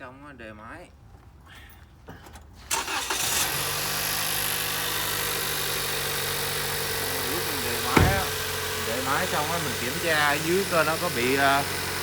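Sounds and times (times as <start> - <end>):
car engine starting and idling: 2.7 - 12.0.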